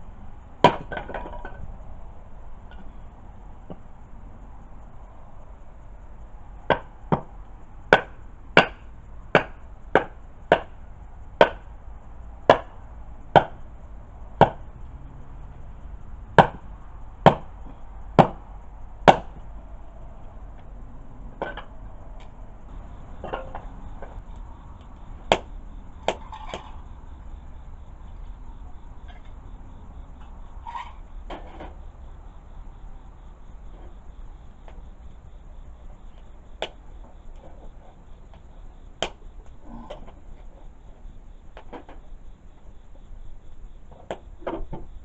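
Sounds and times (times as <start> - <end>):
sharp chopping: 11.4 - 11.6, 19.1 - 19.4.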